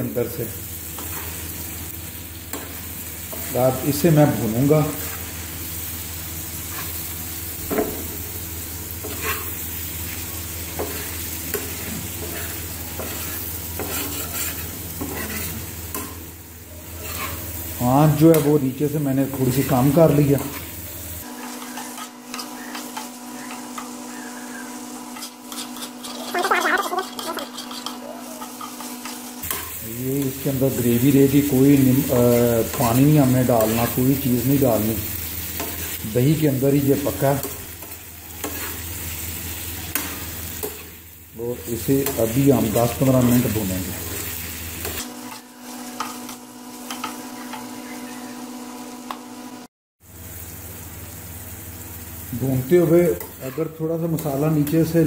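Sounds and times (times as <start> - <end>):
light sizzle: 0.0 - 55.0
metal spatula scraping: 6.6 - 8.0, 9.0 - 16.2, 16.8 - 18.6, 19.4 - 23.9, 25.0 - 36.0, 37.2 - 39.1, 41.9 - 47.7
metal spoon scraping pan: 9.0 - 9.6, 10.8 - 16.2, 16.9 - 17.6, 21.4 - 23.9, 25.1 - 30.4, 37.4 - 38.8.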